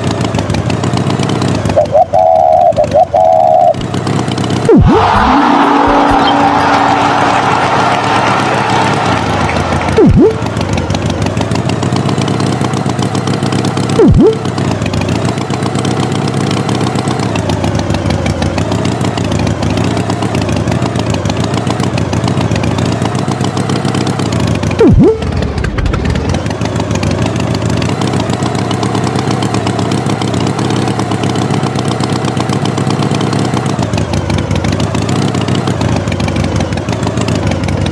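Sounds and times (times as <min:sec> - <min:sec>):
cartoon tractor engine: 0:00.0 - 0:37.9
falling pitch sound effects: 0:04.7 - 0:10.9, 0:14.0 - 0:14.5, 0:24.8 - 0:26.2.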